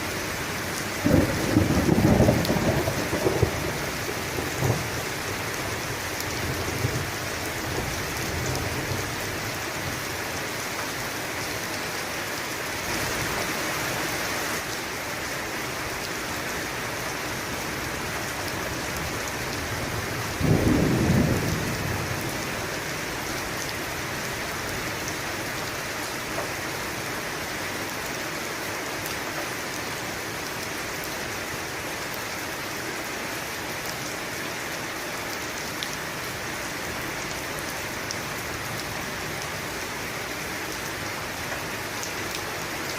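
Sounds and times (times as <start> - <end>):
steady rain: 0.0 - 42.9
thunder rumbling: 1.0 - 5.8, 20.0 - 22.6.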